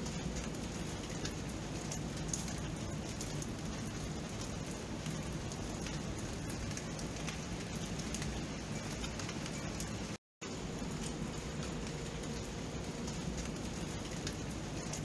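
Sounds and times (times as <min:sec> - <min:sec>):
raindrop ticks: 0:00.0 - 0:15.0
steady rain: 0:00.0 - 0:15.0.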